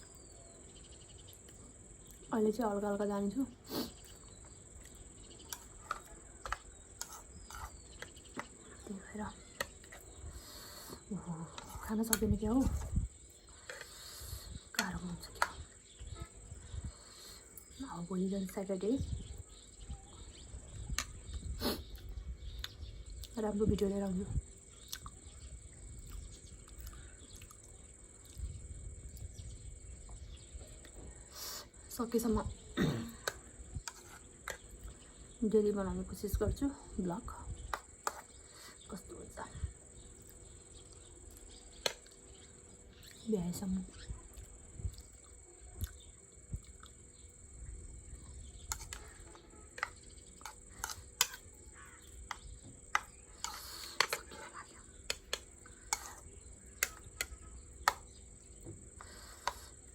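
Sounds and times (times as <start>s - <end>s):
chewing sounds: 24.8s - 25.2s, 26.0s - 28.5s, 44.2s - 47.3s.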